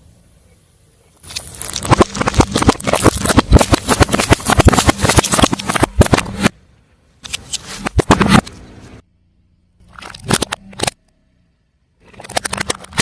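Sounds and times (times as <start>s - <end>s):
tyre crushing something crunchy: 1.2s - 6.4s.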